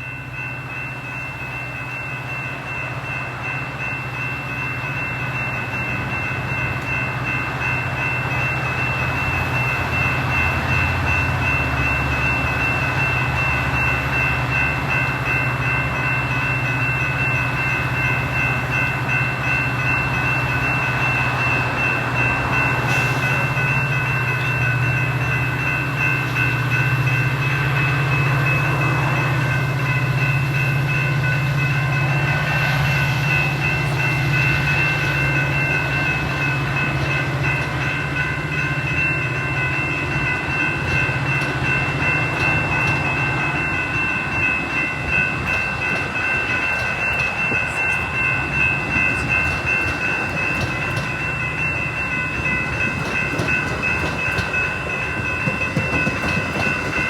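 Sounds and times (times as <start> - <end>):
deep train engine drone: 0.0 - 57.0
wheels clacking over rails: 33.3 - 57.0.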